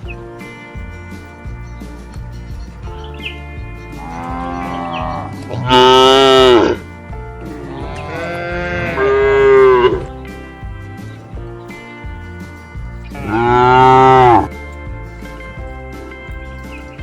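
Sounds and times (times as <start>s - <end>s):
background music with steady beat: 0.0s - 17.0s
cattle mooing: 2.8s - 10.2s, 13.1s - 14.6s.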